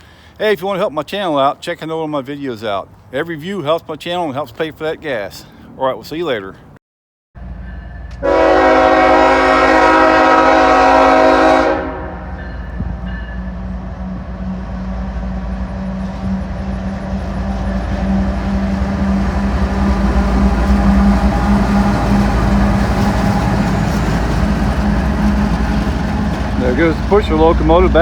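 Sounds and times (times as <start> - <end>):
diesel locomotive engine hum: 7.4 - 28.0.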